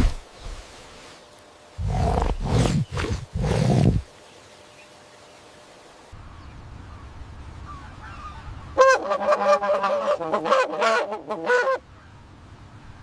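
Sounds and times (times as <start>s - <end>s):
animal honking: 8.8s - 11.8s.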